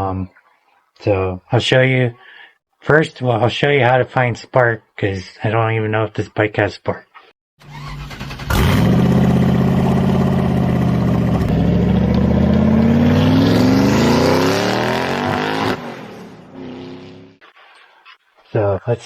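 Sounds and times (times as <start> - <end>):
vehicle engine revving: 7.6 - 17.4.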